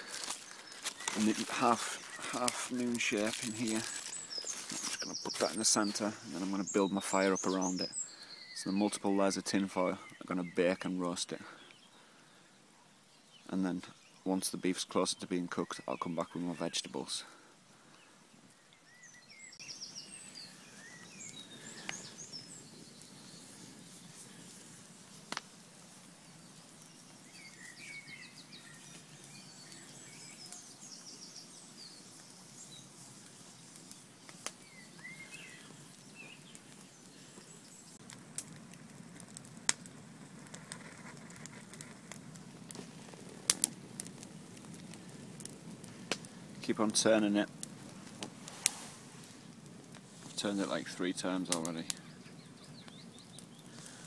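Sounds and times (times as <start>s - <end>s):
fire popping sharply: 0.0s - 8.2s, 19.6s - 54.0s
birds chirping and singing: 0.0s - 24.5s, 26.3s - 38.0s, 50.4s - 54.0s
campfire crackling: 0.0s - 54.0s.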